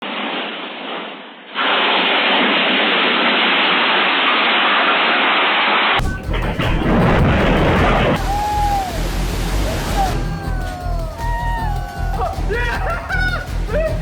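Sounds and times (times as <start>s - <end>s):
rushing water like heavy rain: 7.8s - 10.2s.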